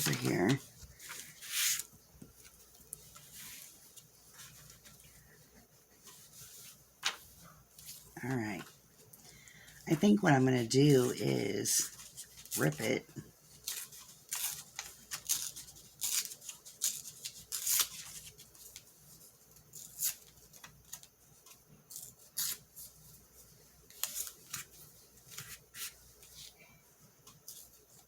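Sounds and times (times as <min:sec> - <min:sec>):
paper tearing: 0:13.6 - 0:18.4, 0:19.7 - 0:21.1, 0:21.9 - 0:22.8.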